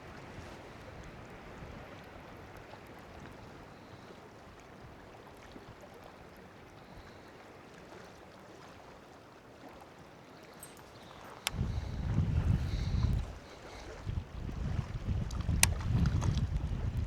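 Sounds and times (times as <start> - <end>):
steady wind: 10.6 - 17.0.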